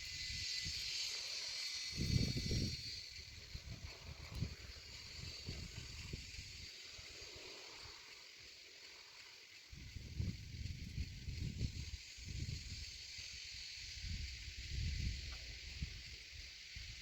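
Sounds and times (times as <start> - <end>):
steady high hiss: 0.0 - 17.0
wind buffeting microphone: 1.9 - 6.7, 9.8 - 12.8.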